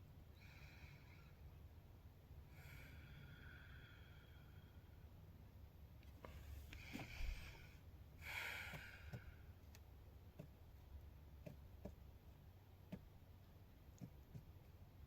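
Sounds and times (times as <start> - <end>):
faint breaths out: 6.3 - 9.5.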